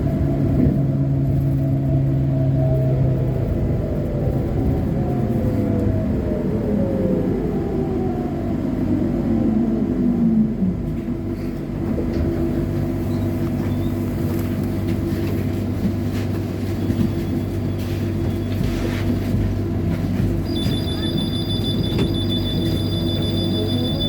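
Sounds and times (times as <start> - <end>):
bus body rumble: 0.0 - 24.0.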